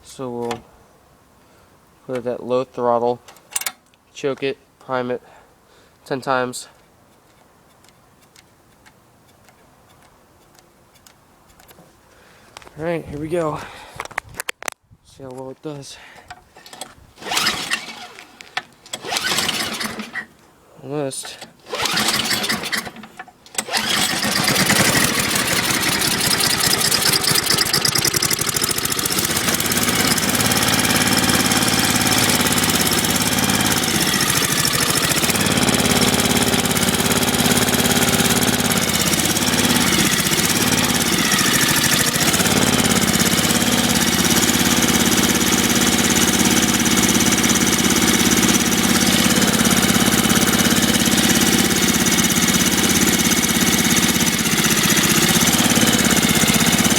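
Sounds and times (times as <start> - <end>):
snowblower engine running: 16.6 - 20.3, 21.6 - 56.9.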